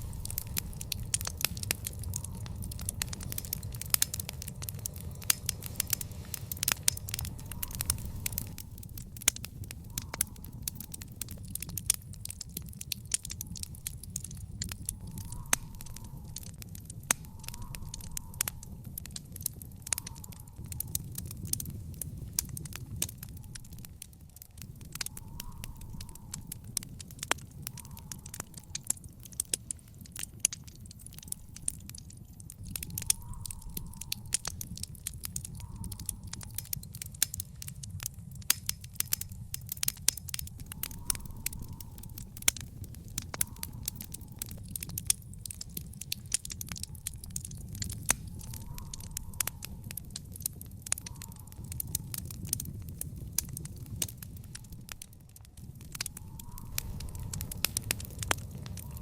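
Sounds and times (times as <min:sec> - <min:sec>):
low rumble: 0:00.0 - 0:19.9
fire crackling: 0:00.0 - 0:59.0
sharp pops from fire: 0:00.0 - 0:59.0.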